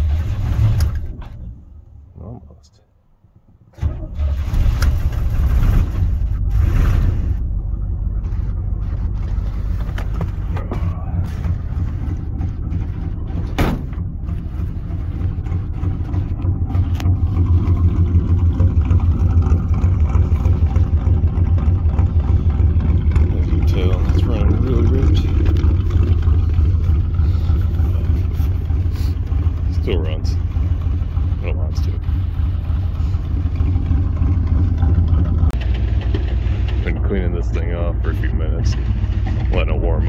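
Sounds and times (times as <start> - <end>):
engine starting and rumbling: 0.0 - 40.0
sharp engine pop: 13.5 - 14.0.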